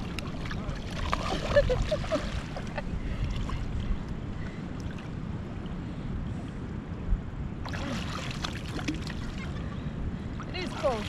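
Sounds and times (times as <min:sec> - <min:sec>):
rumble of wind and water: 0:00.0 - 0:11.0.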